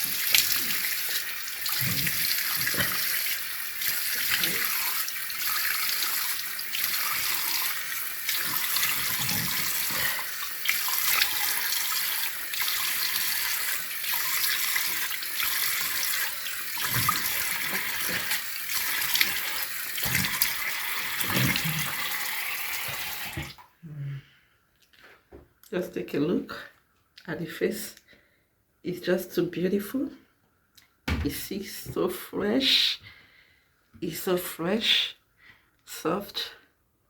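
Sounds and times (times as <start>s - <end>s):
tap water running into sink: 0.0s - 23.6s
water splashes: 0.0s - 23.6s.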